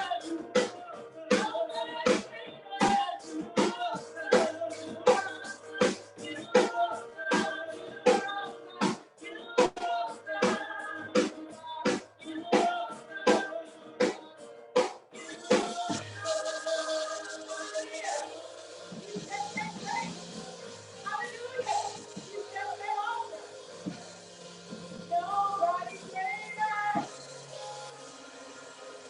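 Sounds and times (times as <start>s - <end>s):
drum beat: 0.0s - 9.0s, 14.8s - 27.7s
band playing instrumental: 15.2s - 28.0s.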